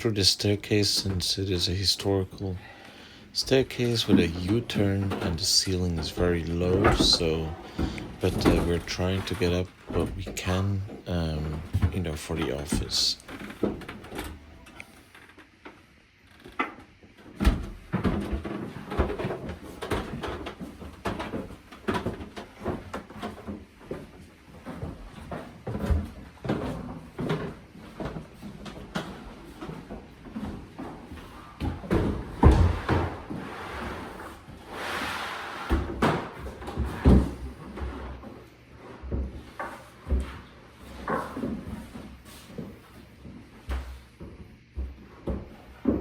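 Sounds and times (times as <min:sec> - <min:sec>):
knocks and clatter of equipment: 0:03.5 - 0:15.7, 0:16.3 - 0:34.4
scraping or rustling noise: 0:32.6 - 0:36.0.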